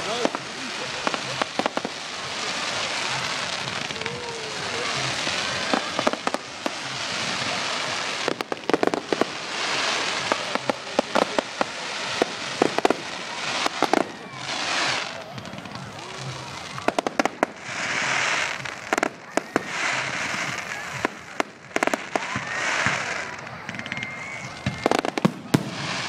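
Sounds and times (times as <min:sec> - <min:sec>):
fireworks fizzing crackle: 0:00.0 - 0:26.0
fireworks pops and bangs: 0:00.0 - 0:26.0.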